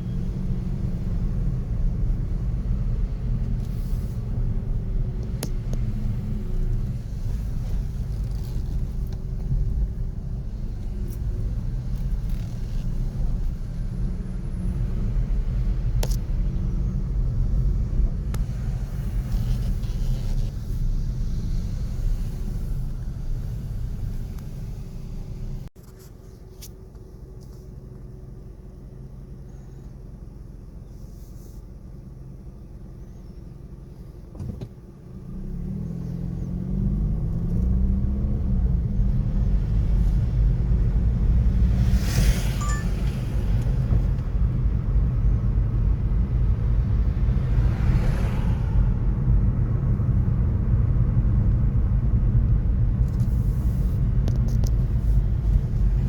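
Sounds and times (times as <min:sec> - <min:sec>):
street traffic rumble: 0:00.0 - 0:56.0
vehicle engine pulling away: 0:35.1 - 0:56.0.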